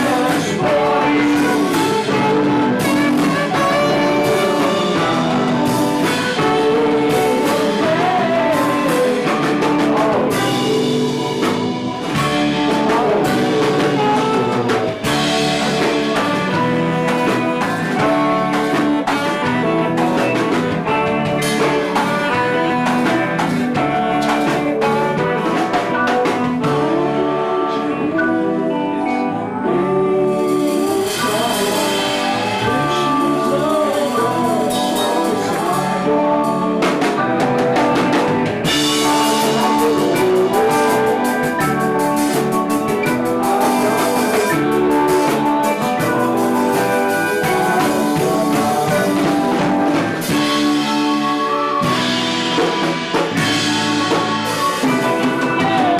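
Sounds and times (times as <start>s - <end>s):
drum kit: 0.0s - 55.9s
guitar: 0.0s - 55.9s
live band playing: 0.0s - 55.9s.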